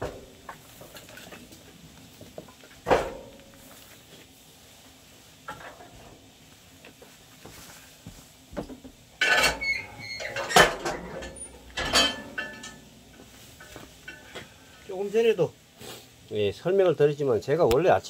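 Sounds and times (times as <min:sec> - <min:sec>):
metallic clanks and clatter: 0:09.2 - 0:12.9.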